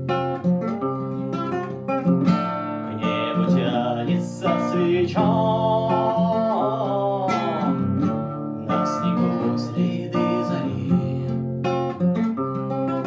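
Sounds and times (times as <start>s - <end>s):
acoustic guitar strumming chords: 0.0s - 13.0s
person singing without words: 2.8s - 11.8s.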